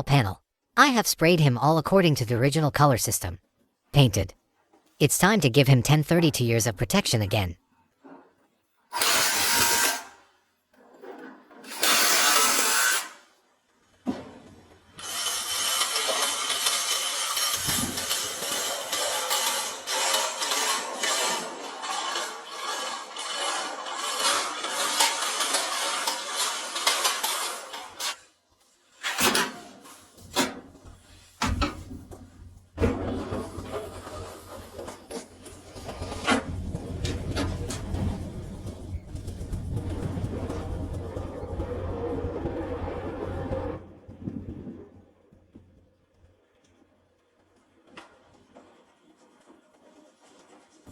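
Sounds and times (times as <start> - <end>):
power tool hissing bursts: 9.0 - 10.1.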